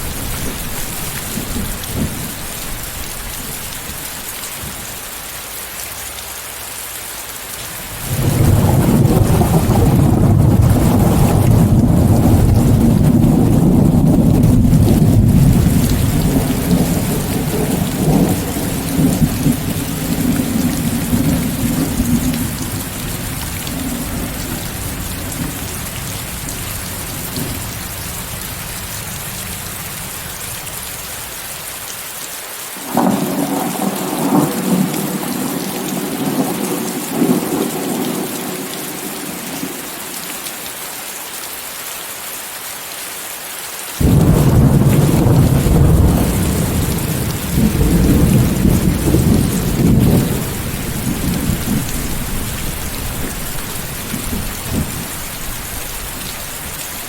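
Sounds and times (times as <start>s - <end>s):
rain hiss: 0.0s - 57.0s
rolling thunder: 8.0s - 29.9s, 32.9s - 39.6s, 44.0s - 56.8s.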